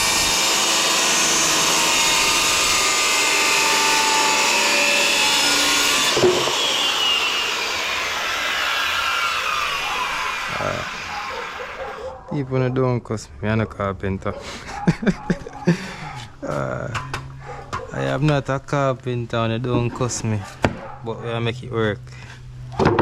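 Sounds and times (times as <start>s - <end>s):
saw blade winding down: 0.0s - 11.8s
power saw cutting plywood: 0.0s - 12.0s.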